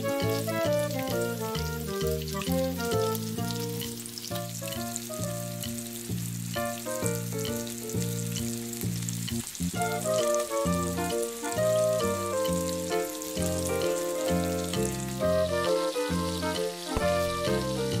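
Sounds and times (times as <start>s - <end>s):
chicken stirred in a wok: 0.0s - 9.8s
instrumental background music: 0.0s - 18.0s
oil sizzling in a wok: 0.0s - 18.0s.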